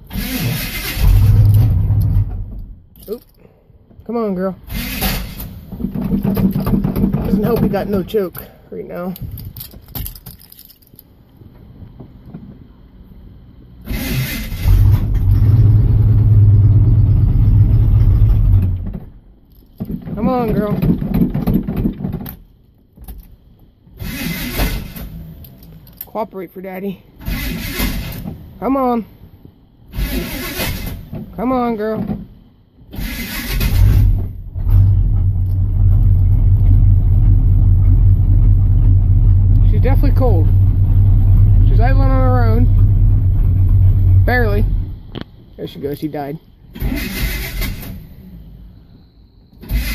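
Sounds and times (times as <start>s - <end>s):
pickup engine cranking: 0.0s - 3.5s, 4.6s - 12.4s, 13.7s - 26.1s, 27.2s - 28.6s, 29.8s - 45.4s, 46.6s - 49.9s
pickup engine running: 4.6s - 26.0s, 33.6s - 45.5s.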